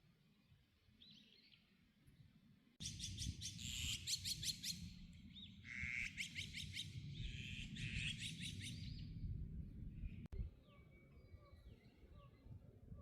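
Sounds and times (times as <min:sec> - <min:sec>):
steady low rumble: 0:08.9 - 0:10.6.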